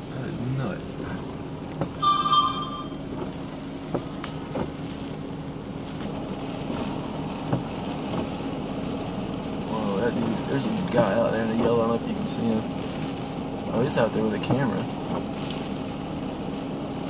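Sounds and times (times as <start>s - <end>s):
car engine idling: 0.0s - 17.0s
short electronic beep: 2.0s - 3.1s.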